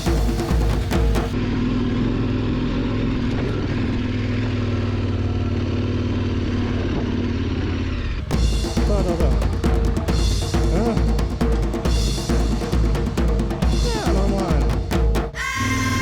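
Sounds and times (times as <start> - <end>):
heavy motorcycle engine running: 0.0 - 9.8.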